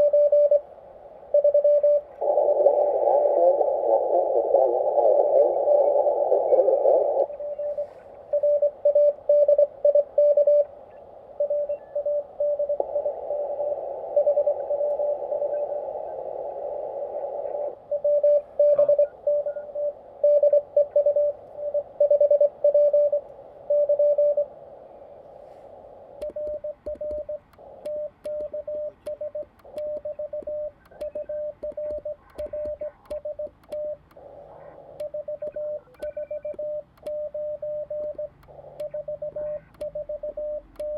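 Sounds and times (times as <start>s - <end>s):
morse code beeping: 0.0s - 0.6s, 1.4s - 2.1s, 7.3s - 10.7s, 17.9s - 24.5s, 26.2s - 40.9s
radio band hiss: 0.6s - 8.6s, 12.3s - 37.1s, 38.1s - 40.8s
faint clicks: 26.2s - 34.2s, 35.0s - 37.3s, 39.7s - 40.0s.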